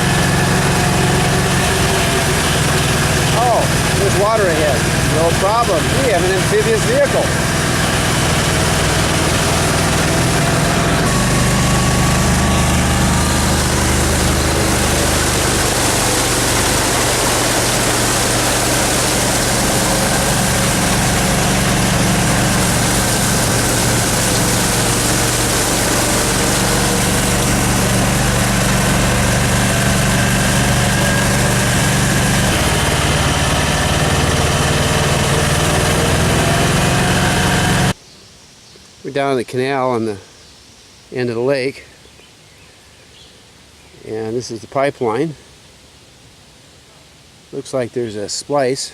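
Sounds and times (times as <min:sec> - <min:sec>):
rushing noise of mud and water: 0:00.0 - 0:38.0
vehicle engine running: 0:00.0 - 0:38.0.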